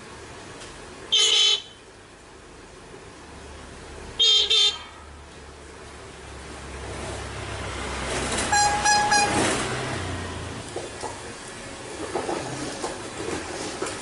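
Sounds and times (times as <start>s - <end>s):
horn toots: 8.4s - 9.7s.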